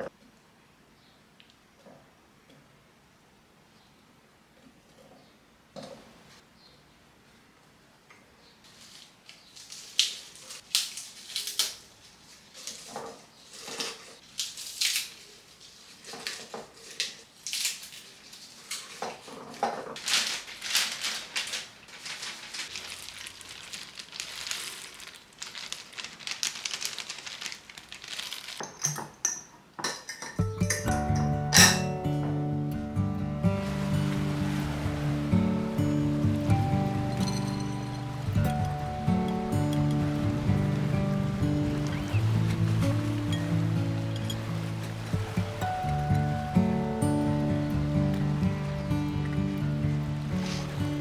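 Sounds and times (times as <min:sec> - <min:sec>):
utensils clinking against dishes: 0:28.6 - 0:32.4, 0:37.0 - 0:40.0.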